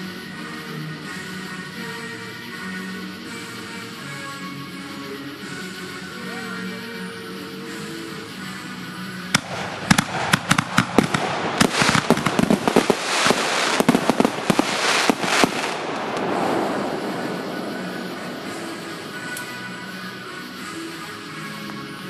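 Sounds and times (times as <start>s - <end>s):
fireworks cracking and popping: 7.7s - 22.0s.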